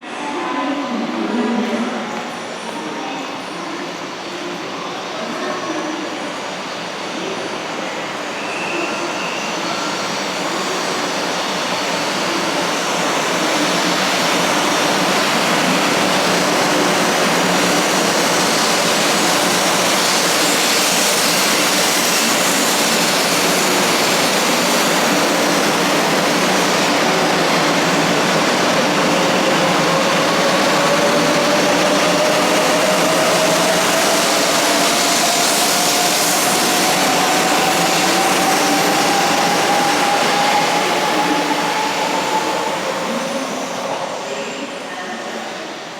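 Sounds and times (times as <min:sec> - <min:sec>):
train rushing and rolling: 0:00.0 - 0:45.9.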